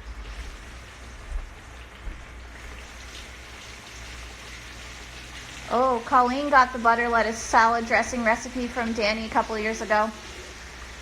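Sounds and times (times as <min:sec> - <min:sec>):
fish sizzling in hot oil: 0:02.5 - 0:11.0.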